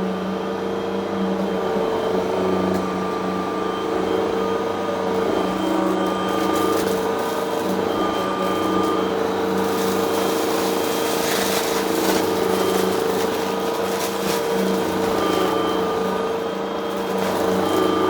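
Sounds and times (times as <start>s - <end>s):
vacuum cleaner running: 0.0s - 18.0s
debris crackling in vacuum: 5.2s - 18.0s.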